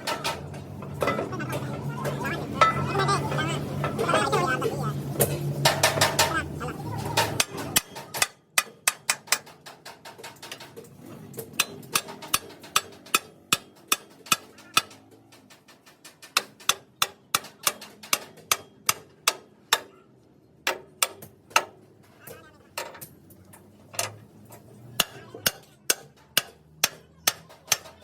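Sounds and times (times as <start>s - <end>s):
hammer striking metal: 5.2s - 6.5s, 7.2s - 10.7s, 11.4s - 20.0s, 20.6s - 21.9s, 24.0s - 28.0s.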